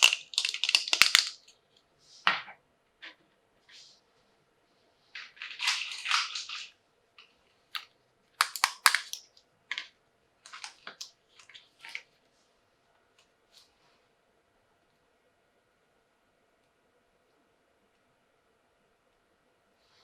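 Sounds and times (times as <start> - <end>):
packaging rustle: 0.0 - 1.4, 5.2 - 6.7, 8.4 - 9.2
plastic clicks and taps: 8.4 - 9.2.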